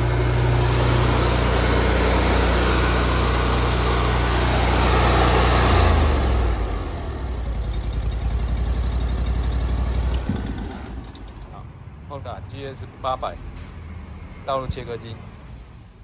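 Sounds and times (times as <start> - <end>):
cutting saw engine running: 0.0 - 11.6.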